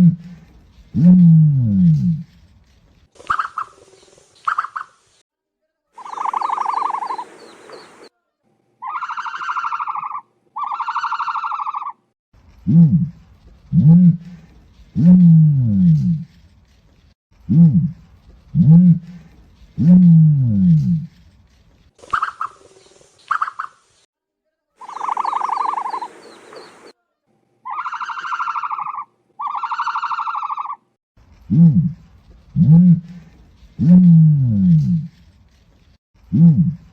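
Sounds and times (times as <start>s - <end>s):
small birds chirping: 1.9s - 5.2s, 6.0s - 8.2s, 20.7s - 24.0s, 24.8s - 27.0s
ostrich buzzy calls: 6.0s - 8.1s, 24.8s - 26.9s.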